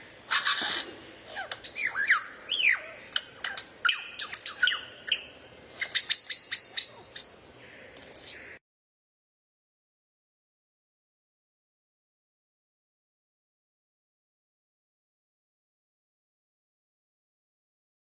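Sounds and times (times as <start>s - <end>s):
songbird singing: 0.0s - 8.6s.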